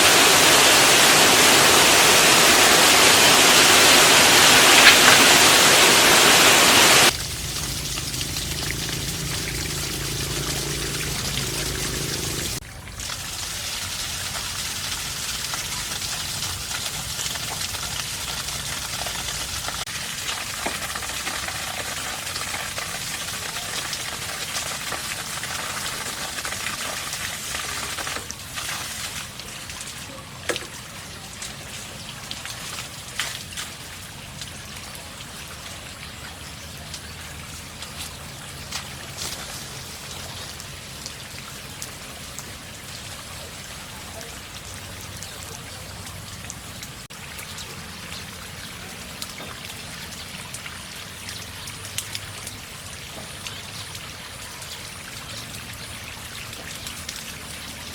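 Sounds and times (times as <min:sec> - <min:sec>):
water running and trickling: 0:00.0 - 0:57.9
water dripping: 0:04.2 - 0:23.2, 0:28.0 - 0:57.9
low rumble: 0:07.1 - 0:12.6.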